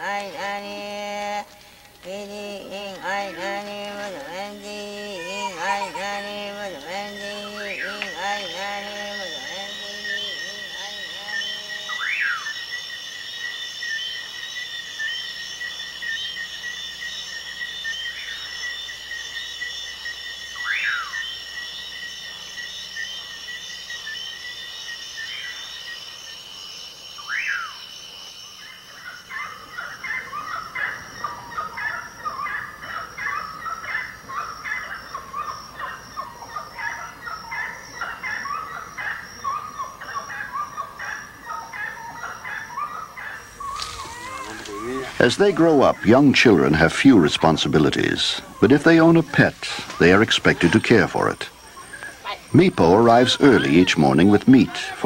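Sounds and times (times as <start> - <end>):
insects trilling: 0.0 - 55.0
rapid chatter of bird calls: 0.0 - 55.0
short falling calls: 43.2 - 55.0.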